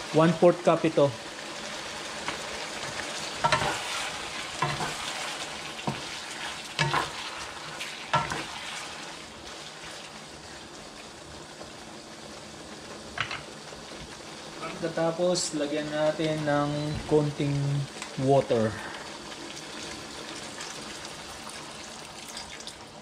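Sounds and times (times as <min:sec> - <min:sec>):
meat sizzling in a pan: 0:00.0 - 0:23.0
spatula knocking and scraping pan: 0:02.3 - 0:07.3, 0:08.1 - 0:08.6.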